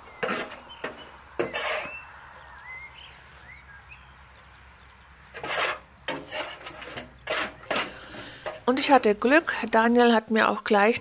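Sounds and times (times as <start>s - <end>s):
scraping and rustling: 0.0s - 2.0s, 5.3s - 9.2s.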